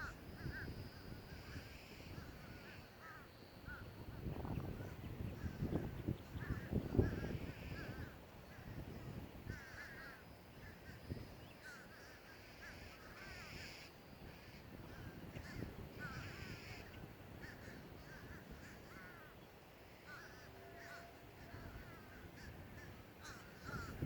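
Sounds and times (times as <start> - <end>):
crows cawing: 0.0 - 4.2, 4.8 - 24.0
low steady hiss: 0.0 - 24.0.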